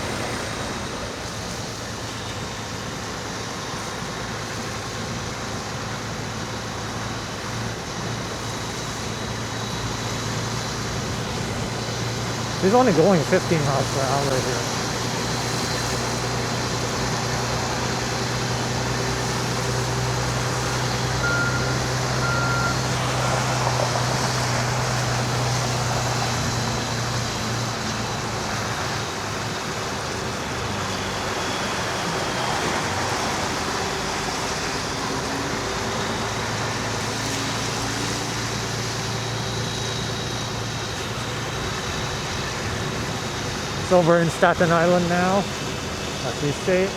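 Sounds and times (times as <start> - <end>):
road noise hiss: 0.0 - 46.9
truck engine drone: 0.0 - 46.9
short high beeps: 21.2 - 22.8.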